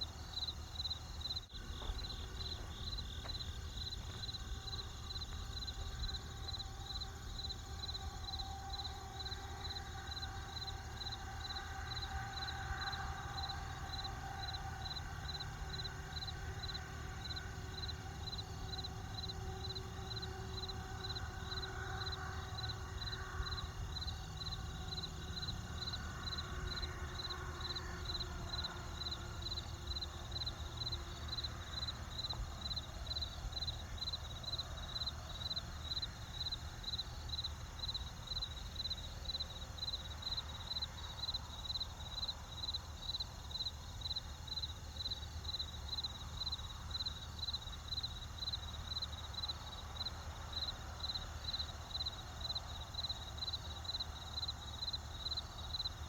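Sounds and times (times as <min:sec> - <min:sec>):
low steady rumble: 0:00.0 - 0:41.2
cricket chirping: 0:00.0 - 0:56.0.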